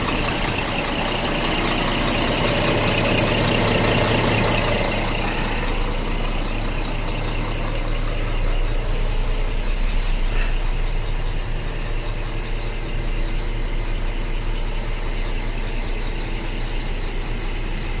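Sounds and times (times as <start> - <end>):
diesel truck engine idling: 0.0 - 18.0
compressed air hiss: 8.9 - 10.6.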